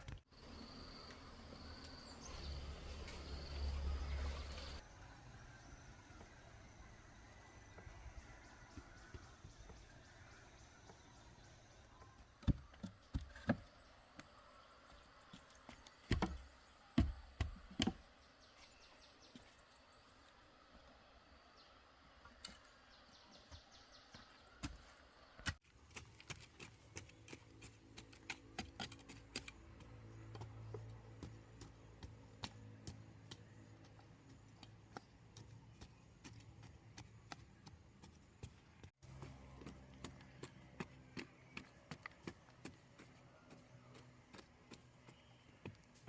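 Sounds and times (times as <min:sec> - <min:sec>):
sharp knocks and thumps: 0:16.0 - 0:18.0.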